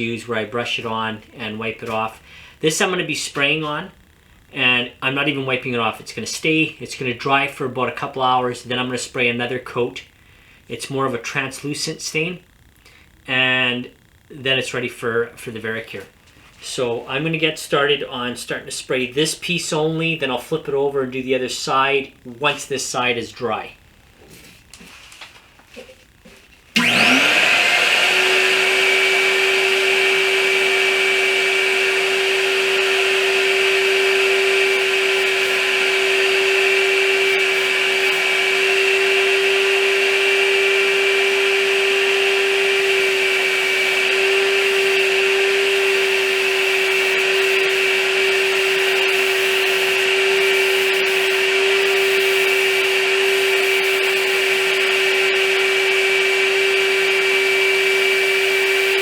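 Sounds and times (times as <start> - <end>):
paint sprayer motor whine: 26.7 - 59.0.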